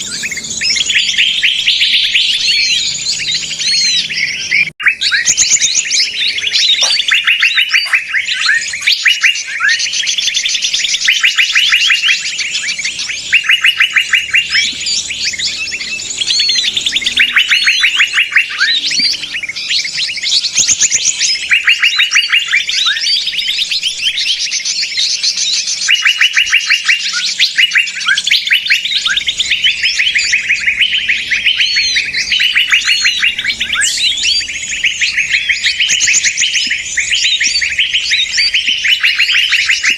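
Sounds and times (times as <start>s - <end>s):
songbirds chirping agitatedly: 0.0s - 39.9s.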